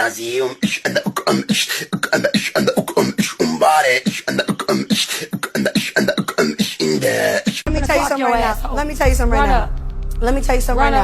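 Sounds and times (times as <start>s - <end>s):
person beatboxing: 0.0s - 7.7s.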